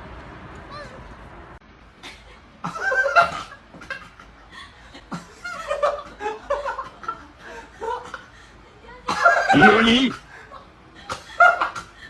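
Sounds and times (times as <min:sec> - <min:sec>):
person laughing: 0:09.1 - 0:10.6.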